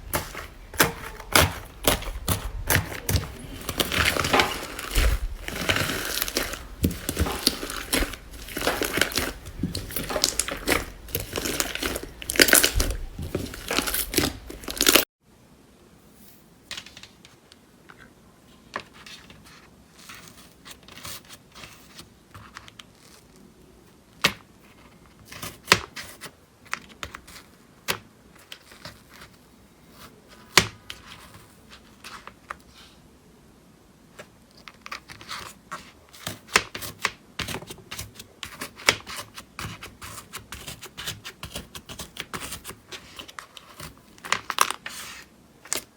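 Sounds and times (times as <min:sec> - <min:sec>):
slime crackling and tearing: 0:00.0 - 0:15.1.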